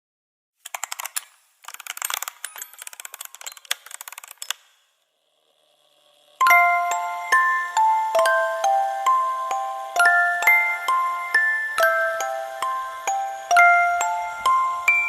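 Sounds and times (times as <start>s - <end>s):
rapid clicking and rattling: 0.6s - 4.7s
glockenspiel music: 6.4s - 15.0s.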